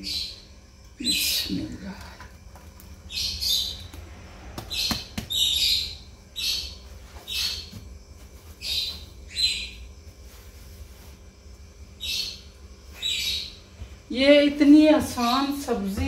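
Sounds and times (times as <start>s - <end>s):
bird chirping: 3.1s - 7.8s, 8.5s - 10.0s, 12.0s - 13.7s.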